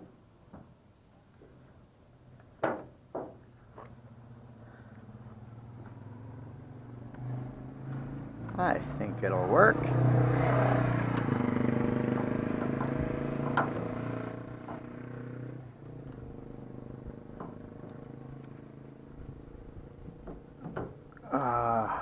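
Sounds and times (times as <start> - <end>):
vehicle engine running: 3.9 - 20.6.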